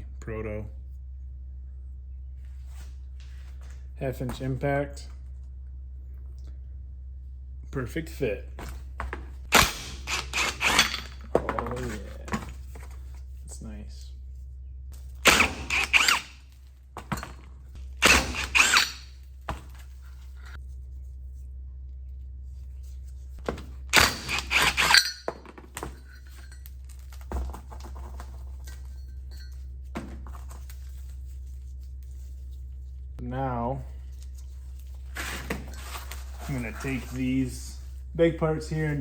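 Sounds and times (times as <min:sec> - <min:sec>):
steady low hum: 0:00.0 - 0:39.0
metal parts knocking and clinking: 0:09.5 - 0:12.6, 0:17.0 - 0:19.2, 0:23.6 - 0:30.7.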